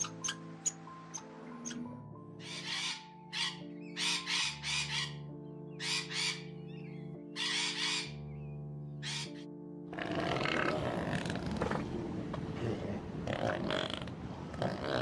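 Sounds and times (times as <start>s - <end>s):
macaw squawking: 0.0s - 6.5s, 7.4s - 8.2s, 9.0s - 9.4s
music of slow held chords: 0.0s - 13.3s.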